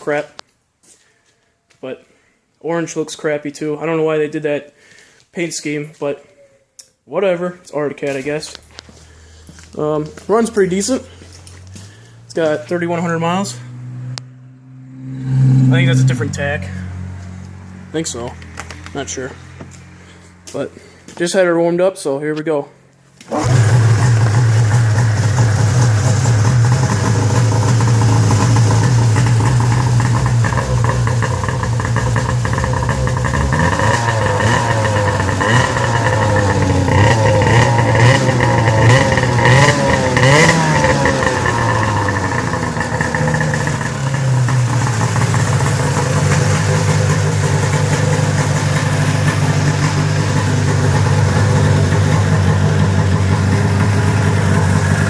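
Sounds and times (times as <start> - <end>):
snowmobile engine revving and idling: 9.0 - 13.8, 15.0 - 20.9, 23.3 - 55.0.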